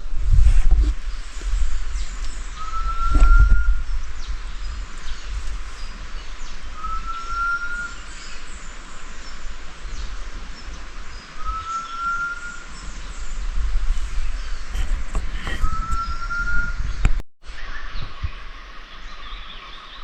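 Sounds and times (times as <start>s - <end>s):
bird whistling rising note: 2.6s - 3.9s, 6.8s - 8.0s, 11.4s - 12.7s, 15.6s - 16.9s.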